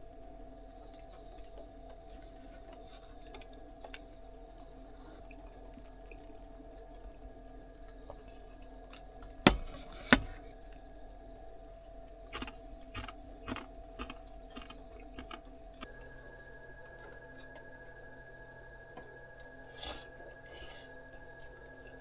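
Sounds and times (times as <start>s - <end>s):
sharp knocks: 9.4s - 10.4s.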